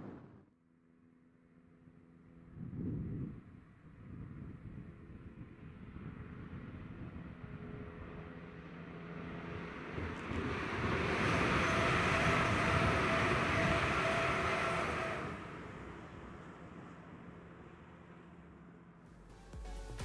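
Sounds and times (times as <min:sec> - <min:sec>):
steady train whine: 0:00.0 - 0:19.0
train wheels rumbling on rail: 0:08.9 - 0:17.8.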